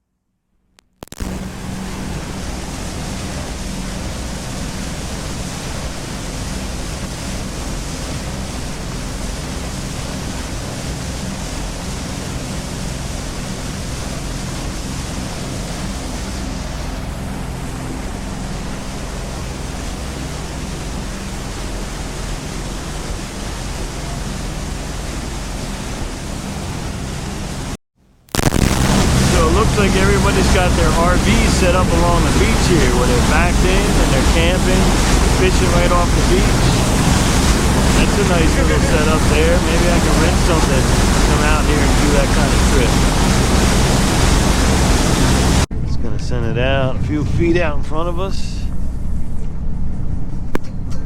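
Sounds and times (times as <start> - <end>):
boat engine drone: 1.0 - 51.0
water rushing: 1.1 - 45.7
wind rushing: 28.6 - 45.7.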